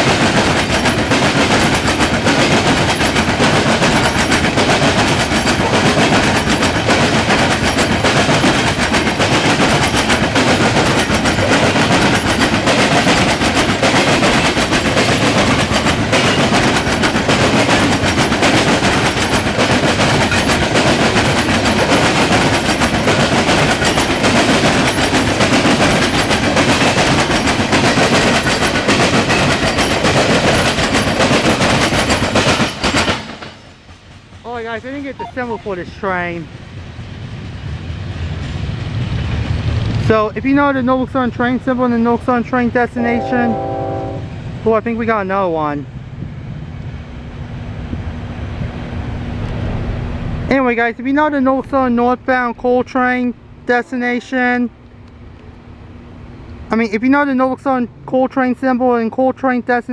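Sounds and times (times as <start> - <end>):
wheels clacking over rail joints: 0.0 - 35.2
train cars rumbling past: 0.0 - 58.1.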